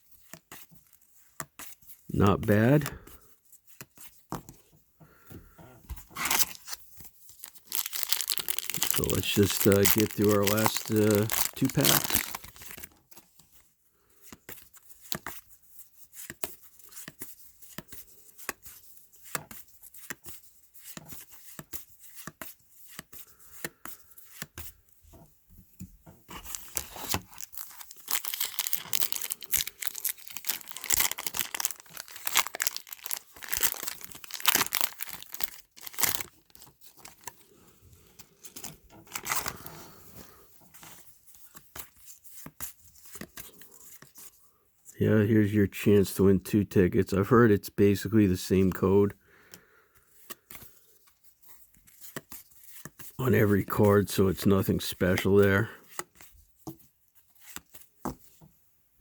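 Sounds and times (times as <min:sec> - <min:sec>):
card pack wrappers tearing and crinkling: 0:06.1 - 0:12.9, 0:26.3 - 0:37.4, 0:38.4 - 0:39.7.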